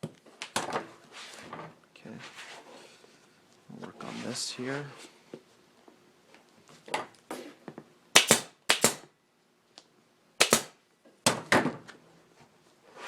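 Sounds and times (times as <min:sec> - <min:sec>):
staple gun snapping: 0:08.2 - 0:09.0, 0:10.4 - 0:10.7.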